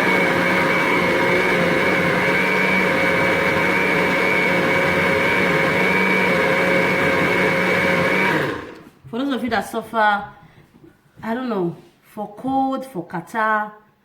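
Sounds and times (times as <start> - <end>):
blender motor whine: 0.0 - 8.9.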